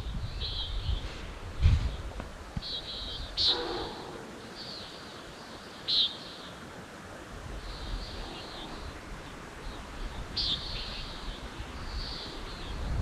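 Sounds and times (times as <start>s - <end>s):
birds trilling: 2.6s - 6.5s.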